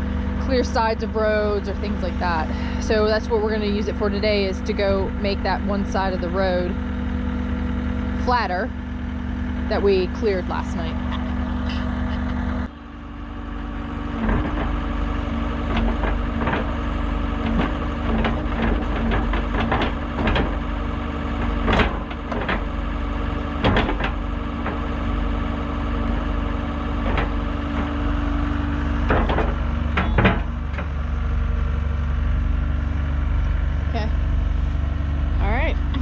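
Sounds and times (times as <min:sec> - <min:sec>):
skid steer engine running: 0:00.0 - 0:36.0
sharp metal clanks and knocks: 0:17.4 - 0:25.0, 0:28.9 - 0:30.9.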